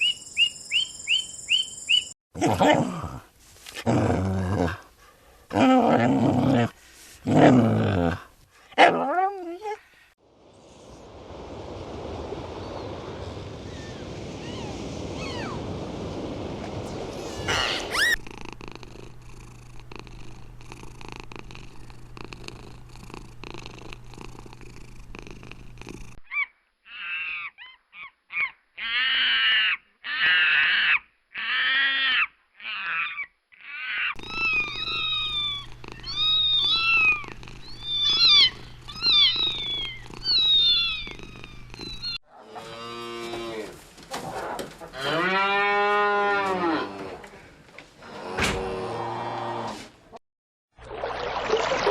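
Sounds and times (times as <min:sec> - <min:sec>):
low-pitched animal call: 0:13.7 - 0:15.7, 0:16.8 - 0:18.3, 0:26.3 - 0:43.7
cat purring: 0:16.8 - 0:26.2, 0:34.2 - 0:42.2
cat meowing: 0:17.2 - 0:18.2, 0:33.8 - 0:42.2.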